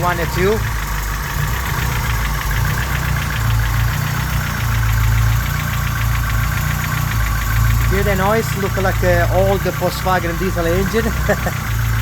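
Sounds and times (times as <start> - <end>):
man talking: 0.0 - 0.7, 7.9 - 11.5
engine idling with light knock: 0.0 - 12.0.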